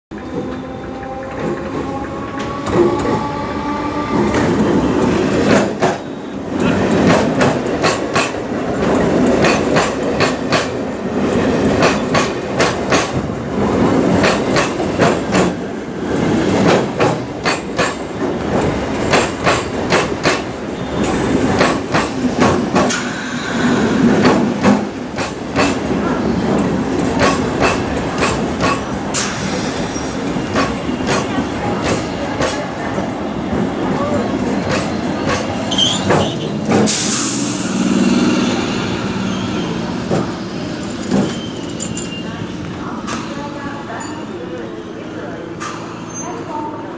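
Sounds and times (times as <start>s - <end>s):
train wheels clattering: 4.2s - 23.1s, 24.0s - 32.9s, 34.5s - 37.2s, 39.6s - 44.2s.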